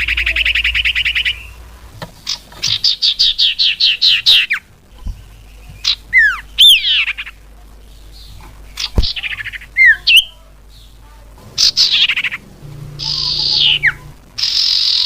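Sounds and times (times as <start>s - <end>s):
bird trilling: 5.8s - 7.4s, 11.5s - 15.0s.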